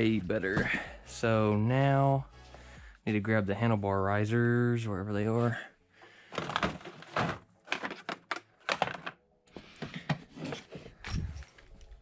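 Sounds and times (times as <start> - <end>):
parts knocking and clattering: 6.3 - 11.4.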